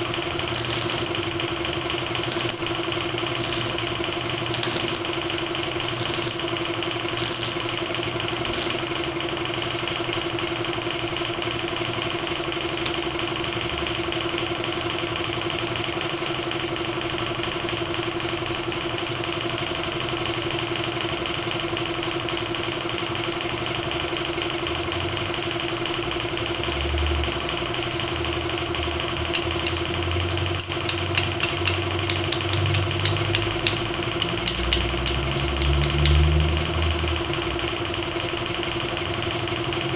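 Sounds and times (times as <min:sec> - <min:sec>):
motor humming: 0:00.0 - 0:09.4
sharp ticks: 0:00.5 - 0:01.3, 0:01.9 - 0:05.2, 0:05.8 - 0:06.4, 0:07.2 - 0:07.7, 0:08.3 - 0:09.0, 0:29.2 - 0:36.8.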